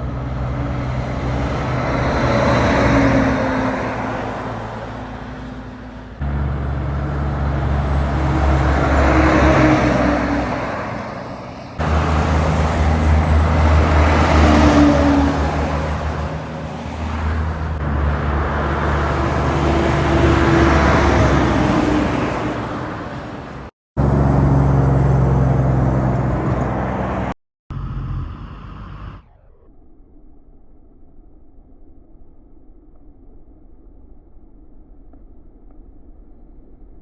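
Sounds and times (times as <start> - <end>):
heavy trucks driving past: 0.0 - 29.4.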